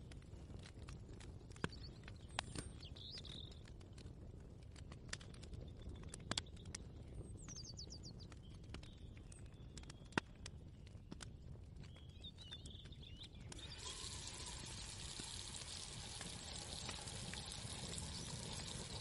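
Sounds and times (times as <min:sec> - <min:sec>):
birds chirping: 0:11.9 - 0:14.8.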